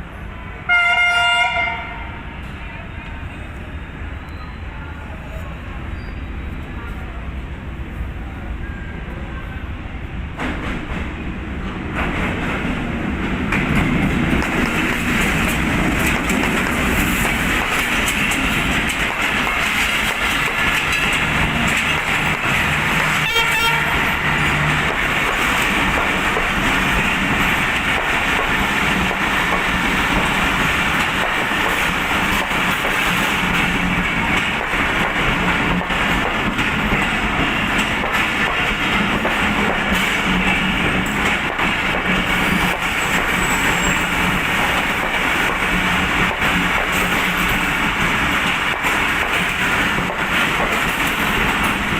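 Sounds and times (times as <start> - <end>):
train rumbling on track: 0.0 - 51.9.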